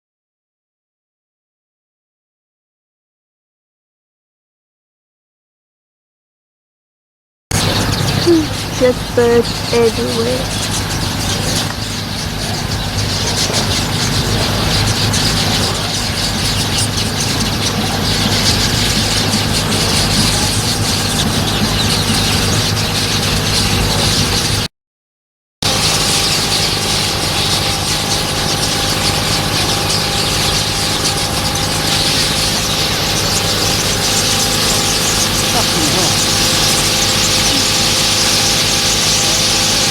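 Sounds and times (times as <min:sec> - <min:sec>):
engine hum: 0:07.5 - 0:24.7, 0:25.6 - 0:39.9
high-pitched hiss and chatter: 0:08.3 - 0:10.6, 0:32.1 - 0:39.9.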